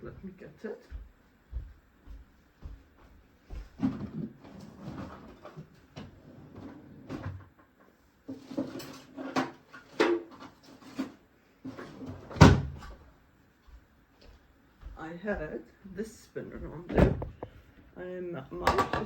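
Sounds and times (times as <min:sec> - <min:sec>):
objects clattering while rummaging: 0:08.3 - 0:12.9.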